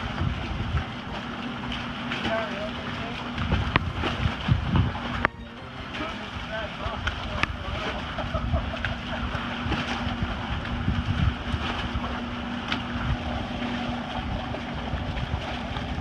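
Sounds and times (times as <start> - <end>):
wind buffeting microphone: 0.0 - 1.0, 3.3 - 5.2, 6.9 - 16.0.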